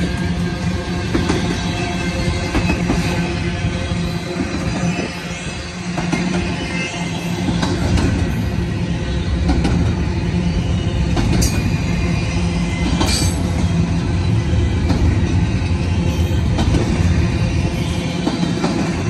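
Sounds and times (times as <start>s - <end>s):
steel wheels rumbling on rail: 0.0s - 19.0s
sharp metallic squeals: 1.4s - 14.6s.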